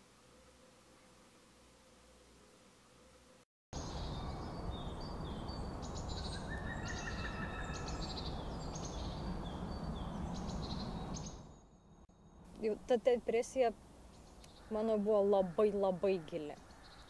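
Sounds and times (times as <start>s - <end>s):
small birds chirping and twittering: 3.8s - 12.8s, 14.0s - 17.0s.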